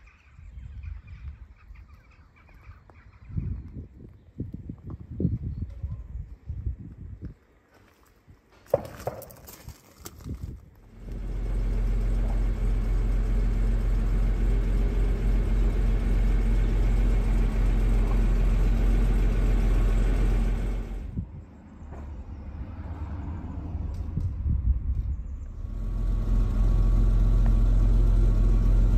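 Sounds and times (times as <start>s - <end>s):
car engine idling: 10.9s - 21.2s, 25.2s - 28.9s.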